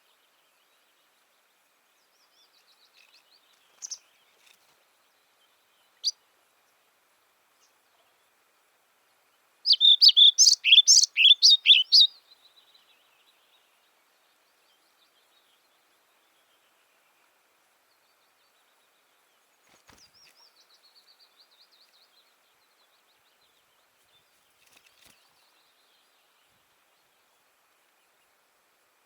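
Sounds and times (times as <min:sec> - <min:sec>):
faint bird chirps: 0:02.0 - 0:06.8, 0:09.6 - 0:17.3, 0:18.0 - 0:27.4
songbird singing high notes: 0:09.7 - 0:12.1.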